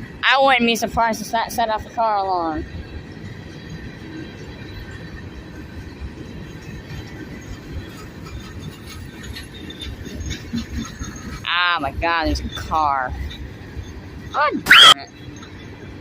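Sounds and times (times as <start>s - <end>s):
freight cars rolling on rails: 0.0s - 16.0s
faint wheel squeal: 6.6s - 11.5s, 12.4s - 15.7s.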